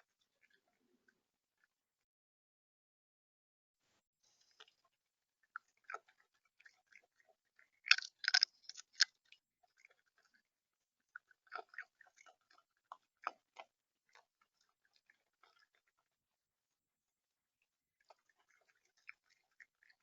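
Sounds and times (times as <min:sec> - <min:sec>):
bird pecking and cracking seeds: 0:07.8 - 0:09.1.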